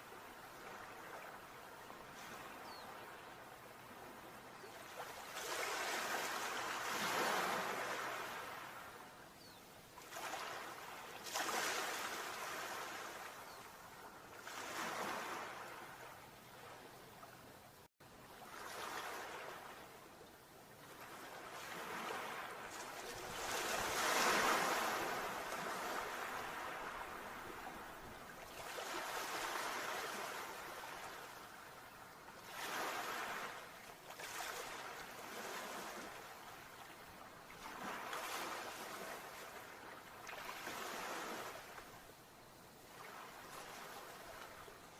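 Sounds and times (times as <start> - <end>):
sea waves breaking: 10.0 - 13.6, 14.4 - 16.1, 21.0 - 31.8, 32.4 - 36.9.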